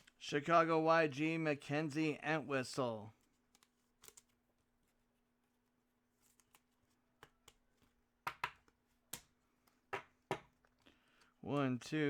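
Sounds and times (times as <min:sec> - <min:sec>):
trading cards clicking and tapping: 0:08.2 - 0:10.8.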